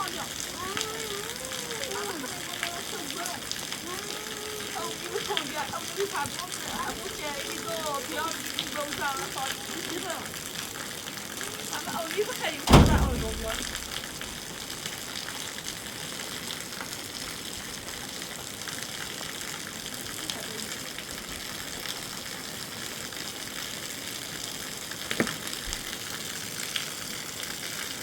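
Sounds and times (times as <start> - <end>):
heavy rain hissing: 0.0 - 16.8
sharp knock: 12.7 - 14.4.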